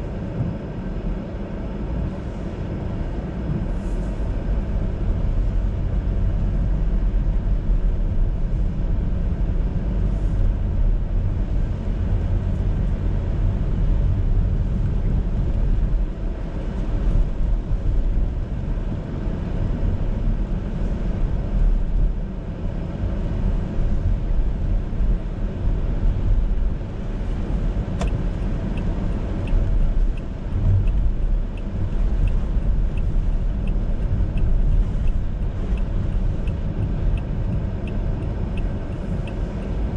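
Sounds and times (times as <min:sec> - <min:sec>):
car road and engine rumble: 0:00.0 - 0:39.9
turn signal ticking: 0:27.2 - 0:39.9.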